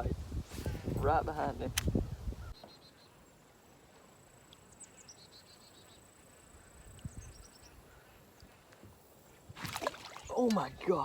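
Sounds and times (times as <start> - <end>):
bird chirps: 2.4 - 3.4, 4.6 - 8.6.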